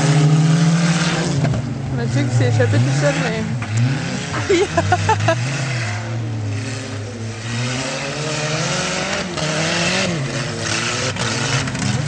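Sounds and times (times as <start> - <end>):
racing car engines revving: 0.0 - 12.0.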